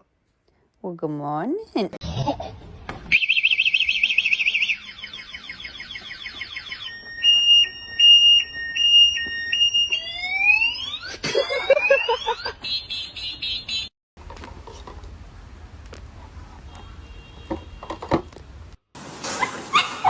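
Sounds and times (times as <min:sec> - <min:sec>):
electronic alarm siren: 0:03.1 - 0:13.9.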